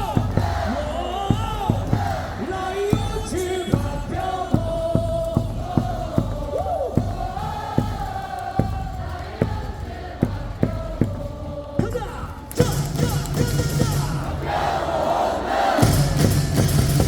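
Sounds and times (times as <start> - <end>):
amplified stadium music: 0.0 - 17.0
crowd singing in unison: 0.0 - 17.0.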